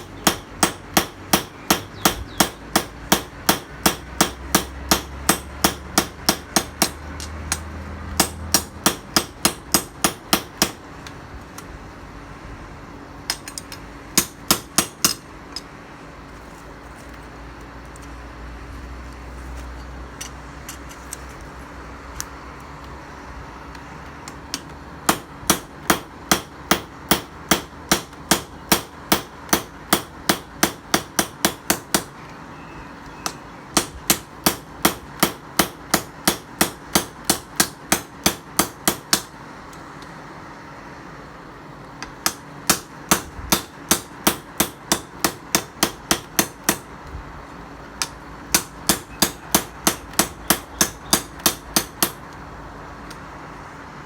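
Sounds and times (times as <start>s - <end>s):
hammer striking steel on anvil: 0.0s - 10.8s, 14.2s - 15.2s, 24.5s - 32.1s, 33.2s - 39.3s, 42.2s - 46.9s, 48.0s - 52.2s.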